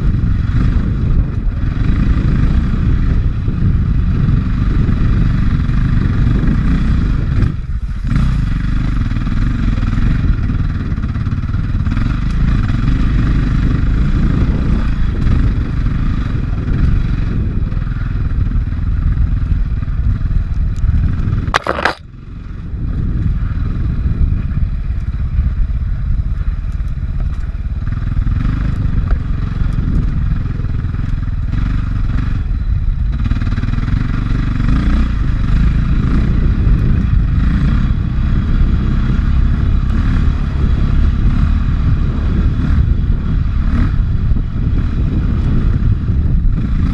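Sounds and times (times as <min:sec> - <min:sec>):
dirt bike engine under load: 0:21.4 - 0:22.0.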